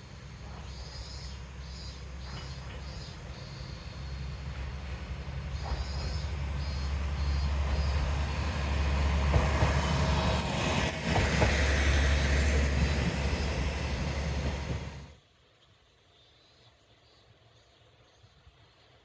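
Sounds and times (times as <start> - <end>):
diesel railcar engine and rail rumble: 0.0 - 15.2
insects chirping: 0.0 - 15.2
wheels clicking on rails: 5.5 - 15.1.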